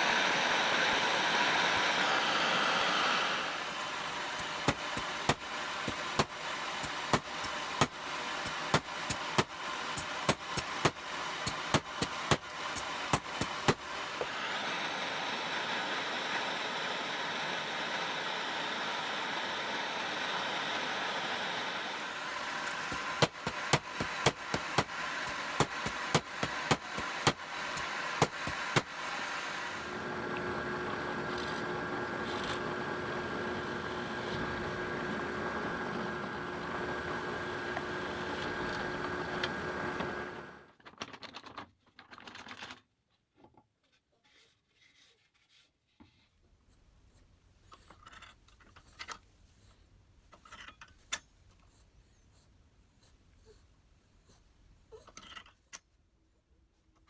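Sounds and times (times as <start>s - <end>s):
steady hiss: 15.7s - 29.9s.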